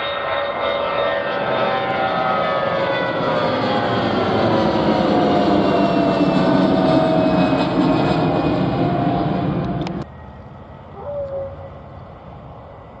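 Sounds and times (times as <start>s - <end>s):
airliner engines passing: 0.0s - 13.0s.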